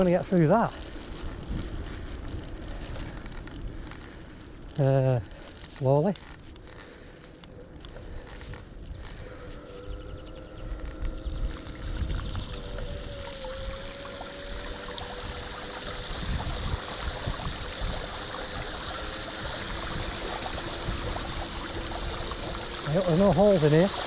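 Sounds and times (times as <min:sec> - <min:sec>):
water splashing around wheels: 0:00.0 - 0:24.0
electric motor whine: 0:07.8 - 0:24.0.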